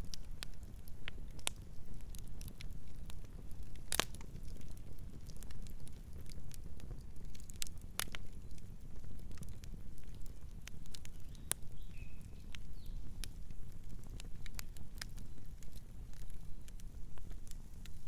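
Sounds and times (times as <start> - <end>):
fire crackling and popping: 0.0 - 18.0
bird chirping: 11.2 - 13.0.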